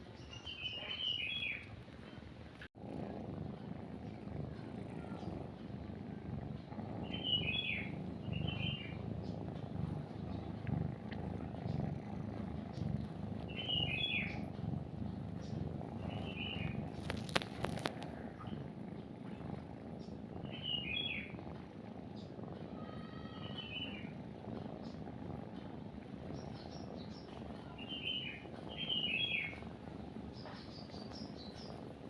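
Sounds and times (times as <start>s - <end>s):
bird chirping: 0.0s - 2.2s, 7.0s - 10.7s, 12.6s - 18.7s, 20.0s - 21.3s, 23.3s - 24.1s, 26.3s - 29.6s, 30.4s - 31.8s
cat purring: 0.0s - 32.0s.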